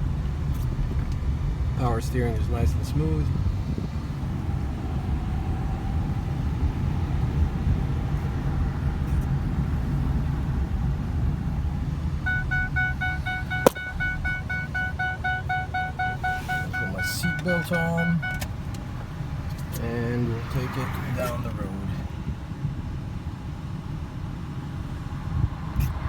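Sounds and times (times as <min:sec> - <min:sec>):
car engine idling: 0:00.0 - 0:25.2
dashboard warning chime: 0:12.2 - 0:18.6
sharp click: 0:13.6 - 0:13.9.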